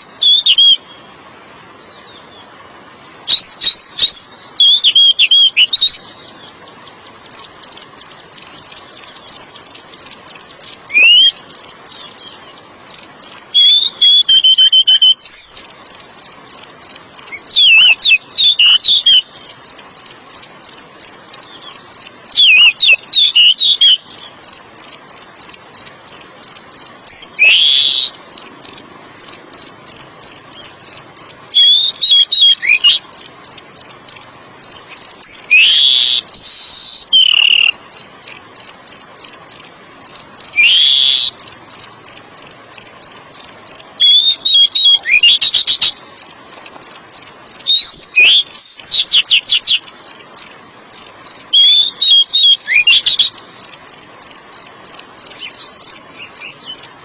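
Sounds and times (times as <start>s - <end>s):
bird singing whistled phrases: 0.0s - 1.0s, 3.3s - 7.5s, 10.9s - 12.5s, 13.5s - 15.7s, 17.2s - 19.3s, 21.4s - 24.3s, 27.1s - 28.2s, 31.5s - 33.0s, 35.2s - 37.8s, 40.4s - 41.3s, 43.9s - 46.0s, 47.6s - 49.9s, 51.5s - 53.4s
cricket chirping: 7.2s - 57.0s.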